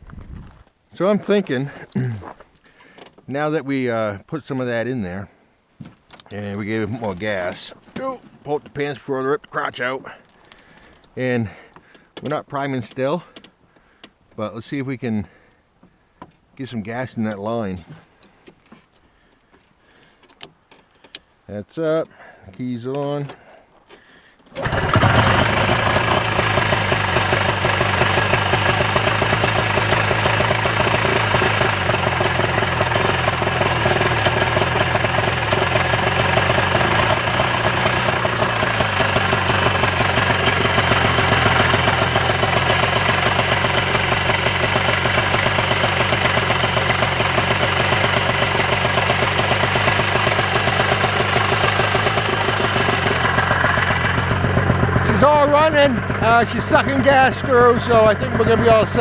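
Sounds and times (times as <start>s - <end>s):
two-stroke engine idling: 24.2s - 59.0s.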